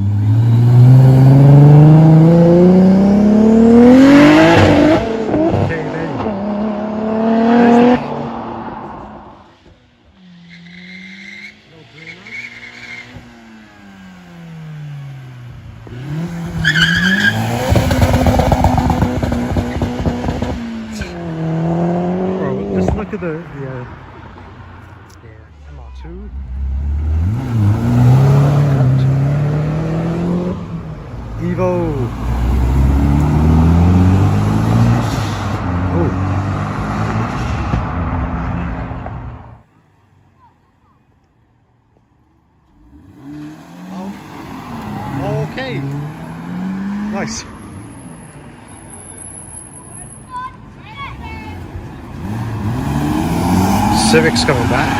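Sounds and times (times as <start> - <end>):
car engine revving: 0.0 - 25.2, 26.0 - 39.6, 42.6 - 49.5, 51.0 - 54.9
tyre squeal: 10.2 - 13.4, 16.6 - 17.8.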